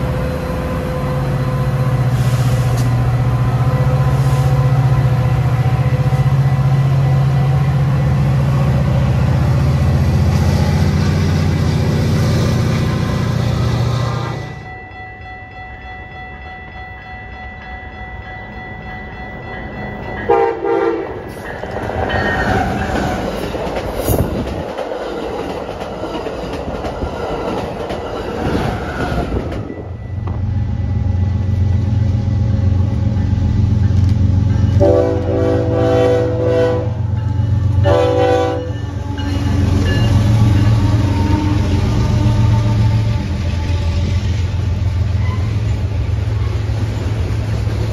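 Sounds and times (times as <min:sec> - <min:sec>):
passing train rumble: 0:00.0 - 0:47.9
locomotive horn blasts: 0:20.3 - 0:21.3, 0:34.8 - 0:37.1, 0:37.8 - 0:39.8, 0:40.4 - 0:44.4.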